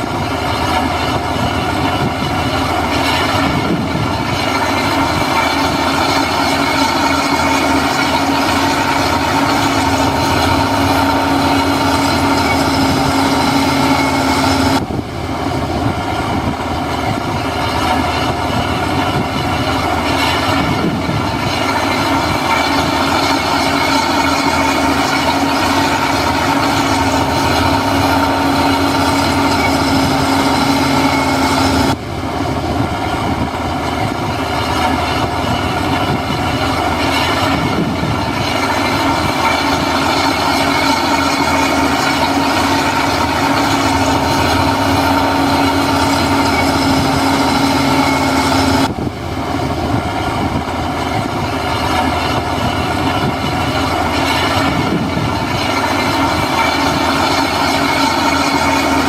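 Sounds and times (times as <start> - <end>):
constant whine: 0.0 - 59.0
diesel earthmoving machinery running: 0.0 - 59.0.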